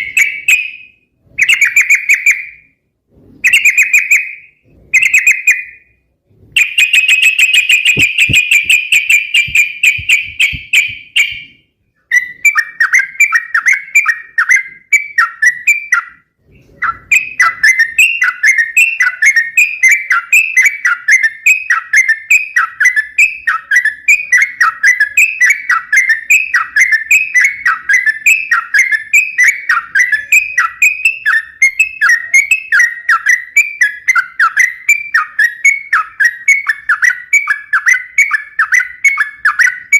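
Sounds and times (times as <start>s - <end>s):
bird trilling: 6.6s - 16.2s.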